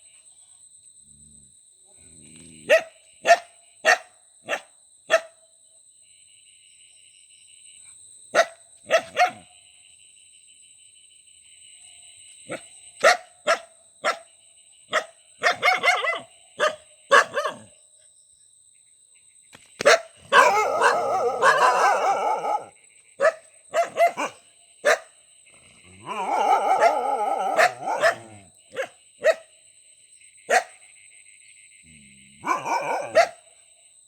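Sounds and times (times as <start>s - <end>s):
dog barking: 2.6s - 5.4s, 8.4s - 9.5s, 12.5s - 14.3s, 14.9s - 17.7s, 19.8s - 25.2s, 26.0s - 29.5s, 30.5s - 30.8s, 32.4s - 33.5s.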